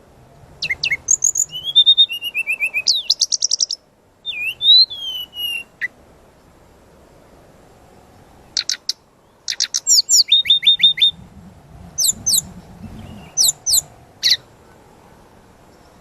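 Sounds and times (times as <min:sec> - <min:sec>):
songbird chirping: 0:00.1 - 0:16.0.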